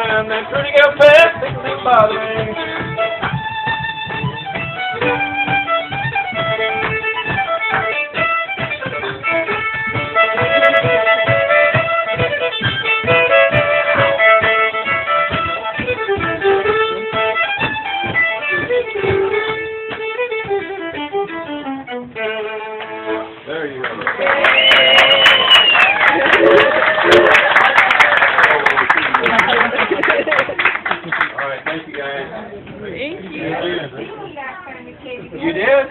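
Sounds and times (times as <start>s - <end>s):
fiddle playing old-time tune: 0.0s - 24.2s, 25.7s - 27.6s.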